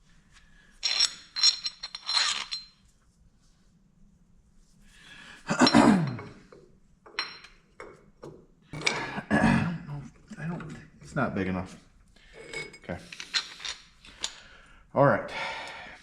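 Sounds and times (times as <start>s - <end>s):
clattering metal scrape: 0.8s - 2.7s
steel tools clinking: 0.8s - 2.8s.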